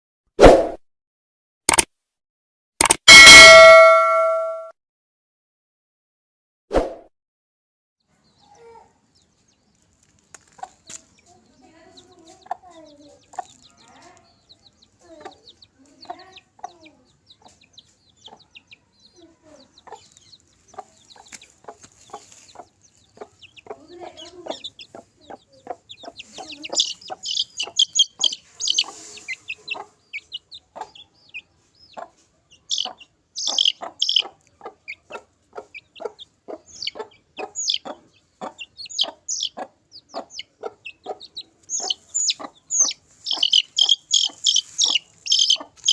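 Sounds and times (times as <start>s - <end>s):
high-pitched chirps: 2.8s - 4.7s, 26.3s - 29.4s, 32.7s - 34.3s, 36.7s - 37.0s, 37.6s - 37.9s, 38.8s - 39.6s, 41.7s - 45.9s
chickens clucking: 8.2s - 45.9s.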